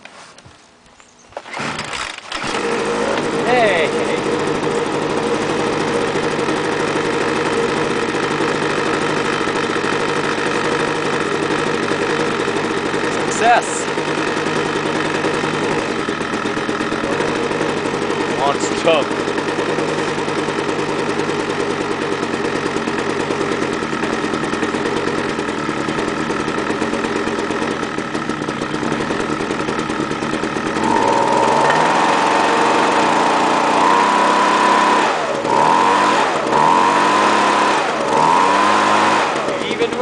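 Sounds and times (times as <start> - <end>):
leaf blower engine idling and revving: 1.4 - 40.0.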